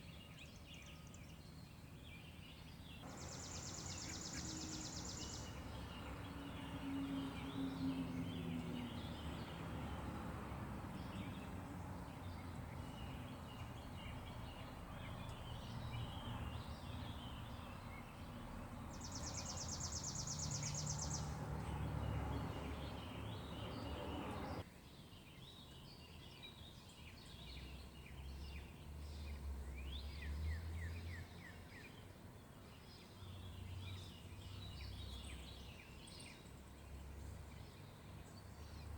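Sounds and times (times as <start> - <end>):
birds chirping: 2.8 - 10.2, 10.8 - 24.6
distant trucks rumbling: 3.0 - 24.6.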